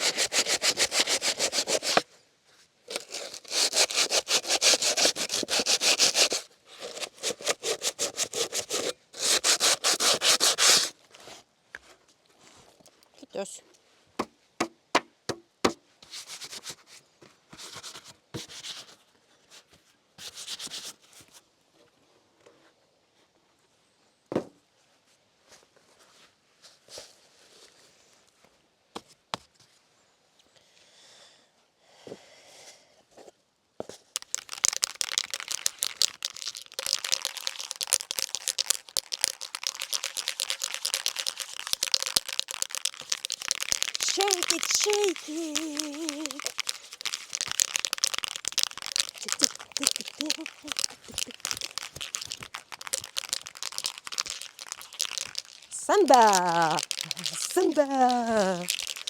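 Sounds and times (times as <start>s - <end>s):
scratchy rubbing or scraping: 0.0s - 2.0s, 2.9s - 10.9s
crinkling and crackling: 2.9s - 9.0s, 33.9s - 59.0s.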